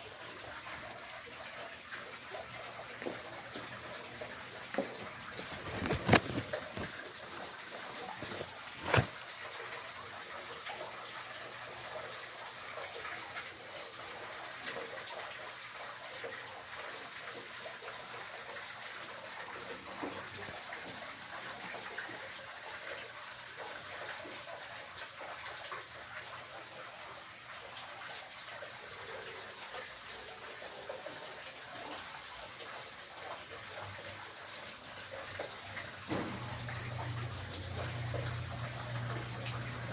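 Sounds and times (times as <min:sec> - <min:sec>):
water rushing and splashing: 0:00.0 - 0:11.1.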